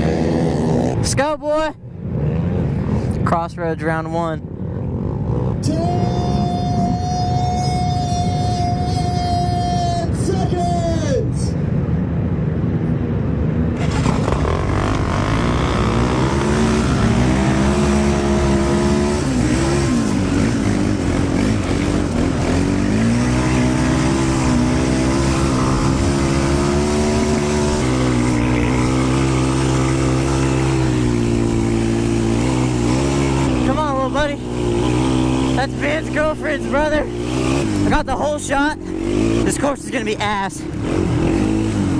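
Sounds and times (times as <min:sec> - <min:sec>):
quad engine revving and shifting: 0:00.0 - 0:01.1, 0:13.8 - 0:41.9.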